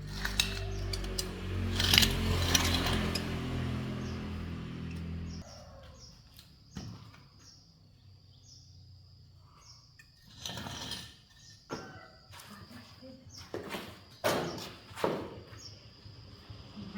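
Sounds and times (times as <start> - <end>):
scraping rustle: 0.0 - 5.4, 10.2 - 11.7
small bird chirping: 4.9 - 10.2.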